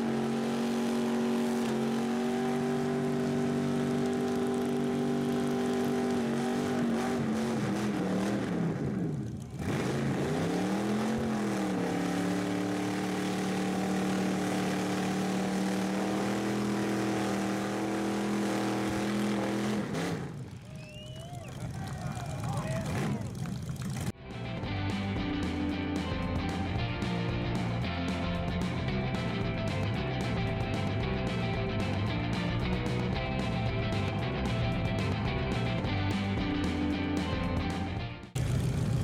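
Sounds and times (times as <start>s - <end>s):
car engine at high revs: 0.0s - 21.0s.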